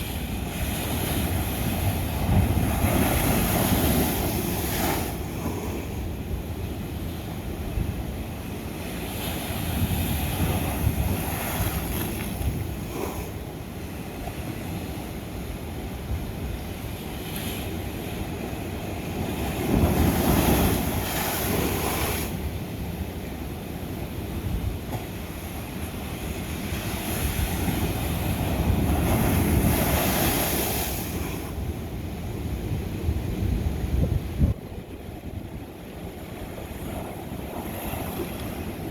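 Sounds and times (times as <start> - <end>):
ocean waves breaking on rock: 0.0 - 7.6, 8.2 - 13.4, 16.9 - 22.9, 23.8 - 32.9
wind buffeting microphone: 0.0 - 13.0, 24.1 - 38.9
low rumble of surf: 0.0 - 38.9.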